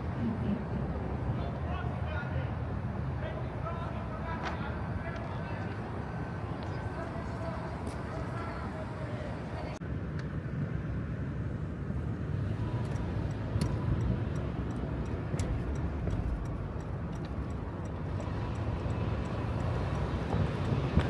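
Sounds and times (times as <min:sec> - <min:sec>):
traffic rumble: 0:00.0 - 0:21.0
faint ticks: 0:12.7 - 0:21.0.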